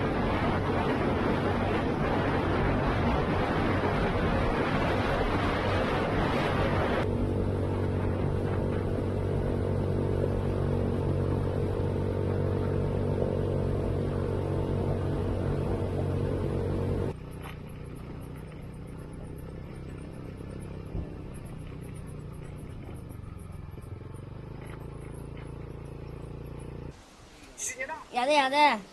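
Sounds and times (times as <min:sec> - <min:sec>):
wind on microphone: 0:00.0 - 0:17.2
motor tricycle running: 0:00.0 - 0:27.0.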